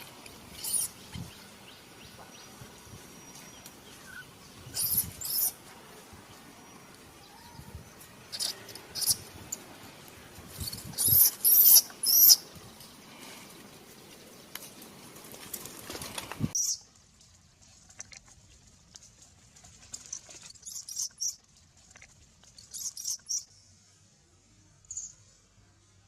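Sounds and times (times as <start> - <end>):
background hiss: 0.0 - 17.8
monkeys squeaking: 0.5 - 1.0, 4.0 - 5.6, 8.3 - 9.3, 10.5 - 12.4.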